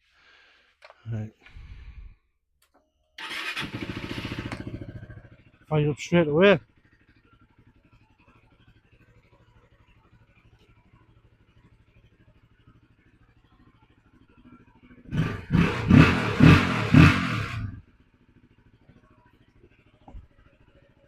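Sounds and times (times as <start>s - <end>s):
motorcycle engine revving: 3.2s - 7.9s, 12.3s - 18.3s.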